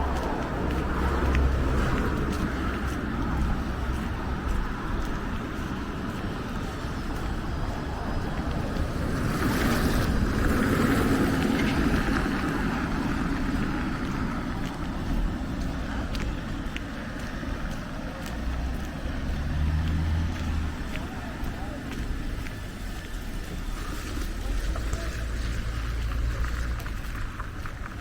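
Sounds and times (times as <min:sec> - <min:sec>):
low engine hum: 0:00.0 - 0:28.0
vehicle passing: 0:00.0 - 0:28.0.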